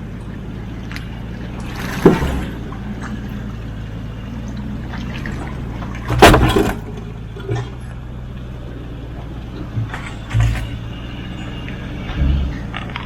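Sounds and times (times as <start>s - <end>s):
engine running low: 0.0s - 13.0s
loud short bangs: 6.1s - 6.9s.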